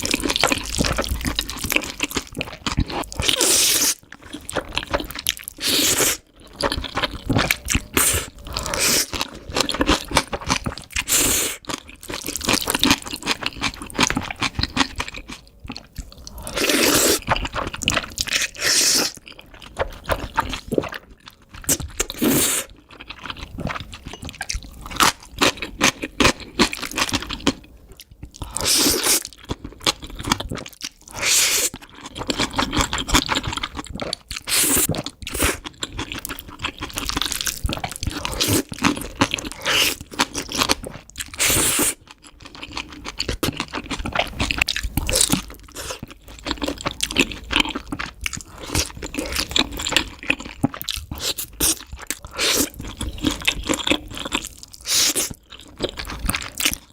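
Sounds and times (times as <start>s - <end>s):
crunchy bites and chewing: 28.3s - 56.9s
wet mouth sounds: 48.0s - 55.4s.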